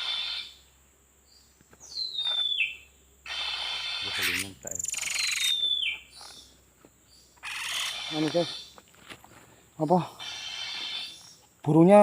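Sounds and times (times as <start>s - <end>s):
bird harsh chattering: 0.0s - 0.6s, 2.1s - 6.4s, 7.4s - 8.7s, 9.9s - 11.4s.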